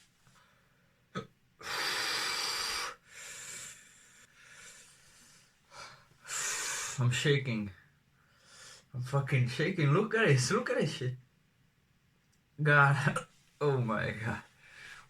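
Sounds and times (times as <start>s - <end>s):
man breathing hard and gasping: 1.6s - 7.0s.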